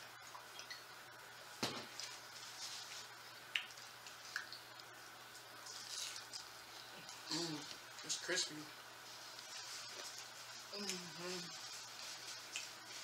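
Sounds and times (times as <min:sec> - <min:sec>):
wet chewing and lip-smacking: 0:03.4 - 0:05.0, 0:12.3 - 0:12.8.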